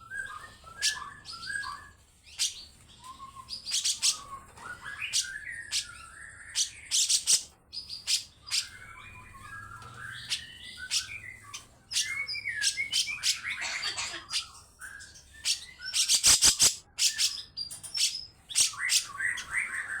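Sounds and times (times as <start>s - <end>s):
bird warbled chattering: 12.9s - 14.6s, 16.0s - 17.4s
bird rasping scolding calls: 13.5s - 14.3s.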